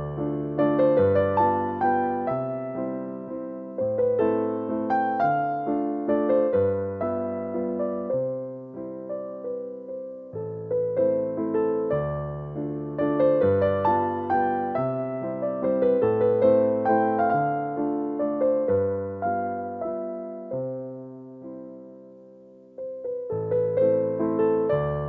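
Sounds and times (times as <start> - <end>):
slow gentle piano music: 0.0 - 25.0.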